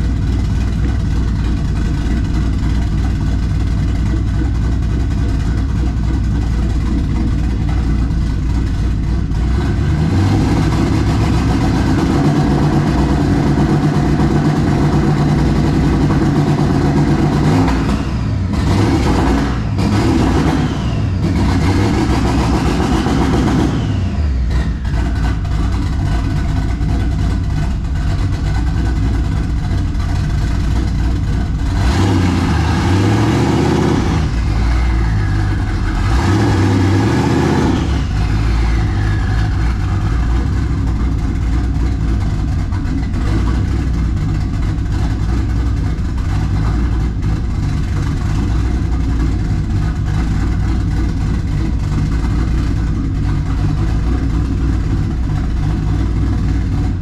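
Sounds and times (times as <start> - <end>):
v eight engine revving: 3.8 - 57.0
turbo whine: 6.6 - 42.4.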